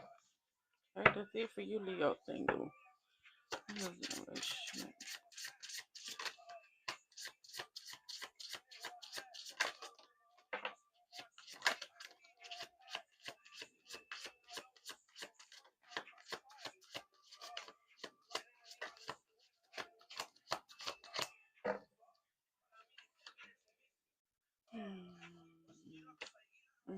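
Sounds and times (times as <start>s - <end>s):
cards being shuffled: 3.5s - 10.1s, 11.1s - 21.3s.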